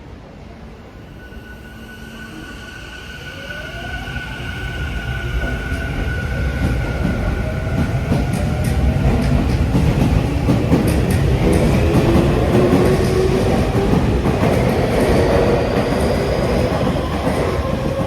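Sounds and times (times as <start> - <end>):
clickety-clack over rail joints: 6.6 - 18.0.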